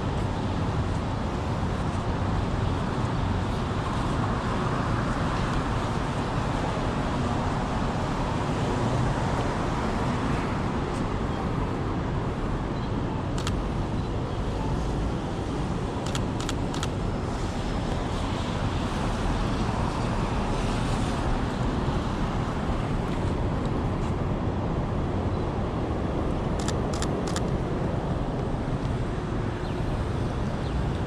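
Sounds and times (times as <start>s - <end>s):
cars passing on street: 0.0s - 31.0s
sharp clicks: 26.6s - 27.5s.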